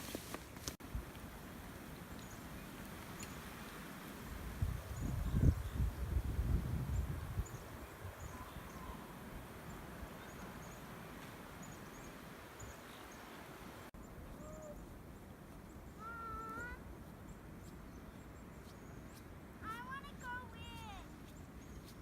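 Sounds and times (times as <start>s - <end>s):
wind rushing: 4.4s - 8.4s.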